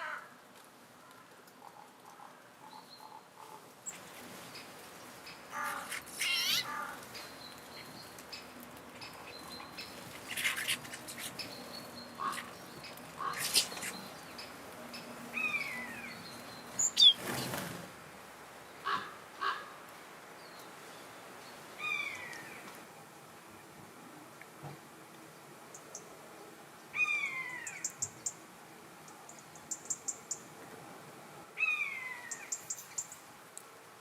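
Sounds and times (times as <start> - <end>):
birds calling: 1.7 - 17.6.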